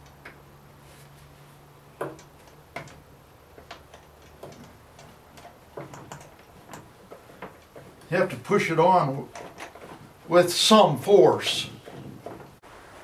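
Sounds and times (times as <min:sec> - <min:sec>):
plastic parts clicking and knocking: 0:02.0 - 0:08.1, 0:09.2 - 0:10.3.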